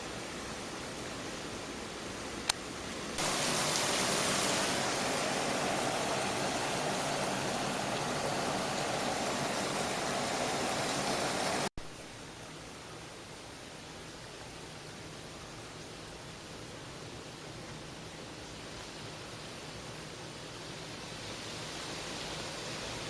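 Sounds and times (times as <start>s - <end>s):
wind and rain on microphone: 0.0s - 23.0s.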